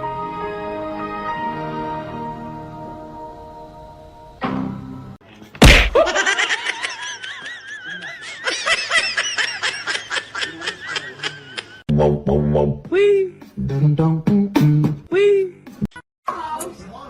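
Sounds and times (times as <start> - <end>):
music: 0.0 - 5.2, 11.9 - 15.9
sharp thump: 5.6 - 6.1.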